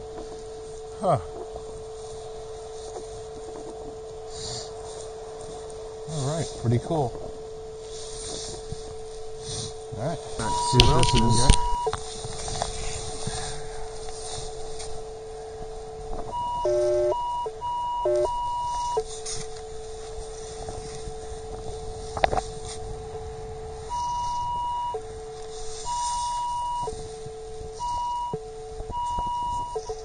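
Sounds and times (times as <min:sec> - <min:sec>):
metal detector threshold hum: 0:00.0 - 0:30.0
warbling low-high signals: 0:00.0 - 0:30.0
metal detector beeps: 0:09.4 - 0:12.1, 0:16.3 - 0:19.1, 0:23.8 - 0:25.1, 0:25.7 - 0:30.0.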